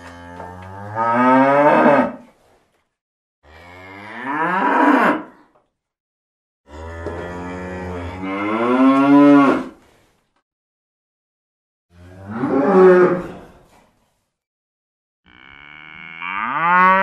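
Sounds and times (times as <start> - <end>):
cow mooing: 0.0 - 2.2, 6.7 - 9.8, 15.3 - 17.0.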